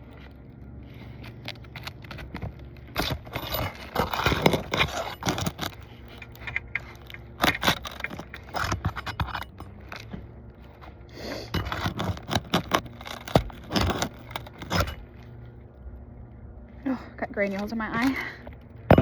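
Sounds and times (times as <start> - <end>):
shingles scraping and crackling: 0.0 - 15.4
metal tool grating on shingles: 1.0 - 10.1, 11.2 - 15.2.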